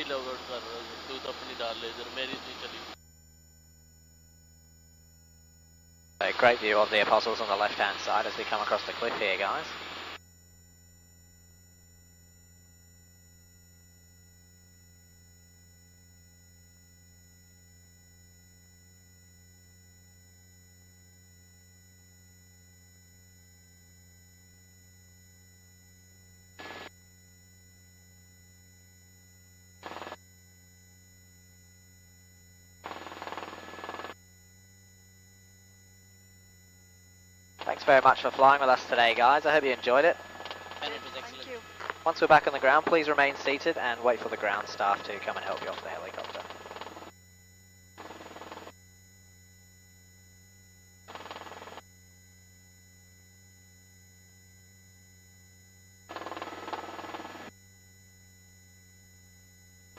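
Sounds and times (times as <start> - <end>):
intercom line hum: 0.0 - 59.9
helicopter hum through headset: 38.1 - 47.1.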